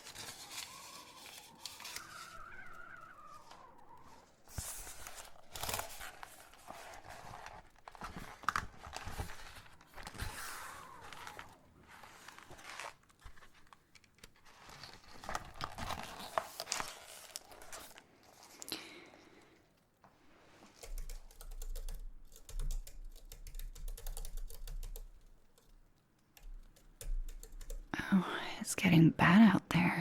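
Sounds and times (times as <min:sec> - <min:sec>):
paper rustling and crinkling: 0:00.0 - 0:18.7.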